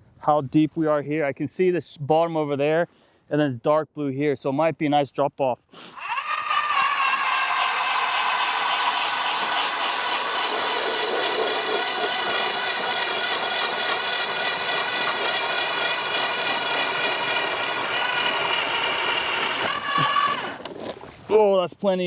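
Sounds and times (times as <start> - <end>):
power ice auger drilling: 5.8 - 21.4.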